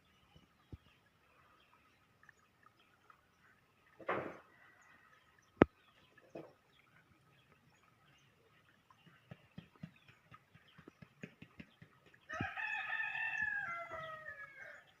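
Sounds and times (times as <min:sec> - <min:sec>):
faint ticks and taps: 0:05.5 - 0:05.8, 0:08.8 - 0:12.6
rooster crowing: 0:12.3 - 0:14.9.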